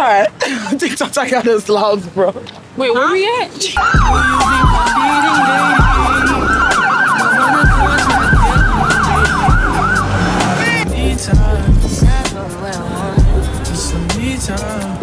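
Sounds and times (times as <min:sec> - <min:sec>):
siren in fast yelp mode: 0:03.8 - 0:10.8
siren tone sliding down: 0:03.8 - 0:10.8
low rumble: 0:07.7 - 0:12.2.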